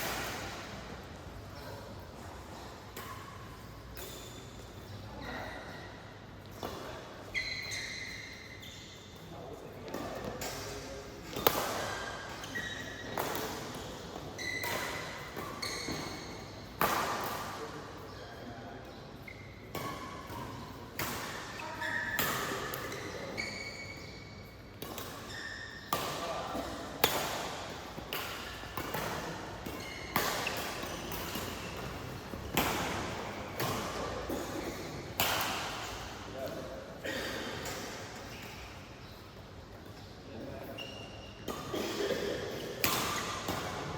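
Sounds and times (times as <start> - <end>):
racket hitting shuttlecock: 0.0 - 1.0, 9.9 - 17.8, 24.8 - 36.3, 42.8 - 43.9
shoes squeaking on court floor: 0.0 - 43.9.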